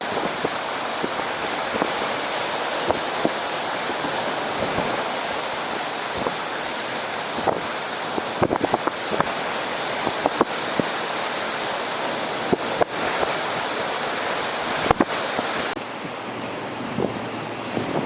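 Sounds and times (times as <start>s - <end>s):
waves rushing onto beach: 0.0s - 18.0s
wind buffeting microphone: 0.0s - 18.0s.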